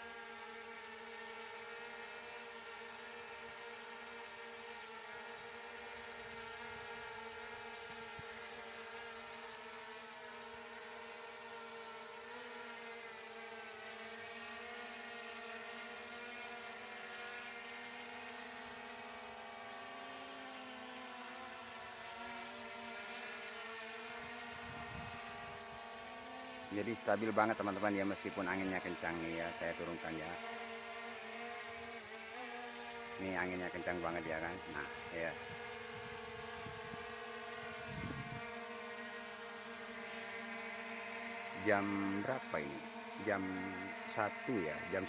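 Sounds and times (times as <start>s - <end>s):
drone propellers whining: 20.6s - 45.0s.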